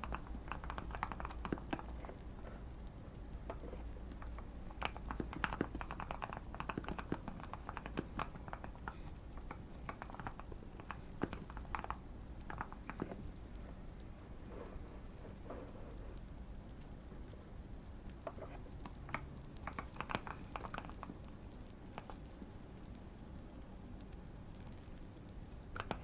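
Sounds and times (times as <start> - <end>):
fire crackling: 0.0 - 26.0
mechanical keyboard typing: 3.4 - 8.9.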